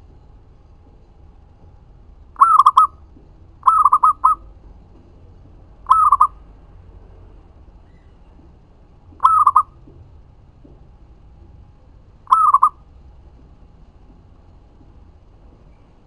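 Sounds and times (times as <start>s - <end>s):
dove cooing: 2.4s - 3.0s, 3.6s - 4.5s, 5.8s - 6.4s, 9.2s - 9.8s, 12.2s - 12.8s.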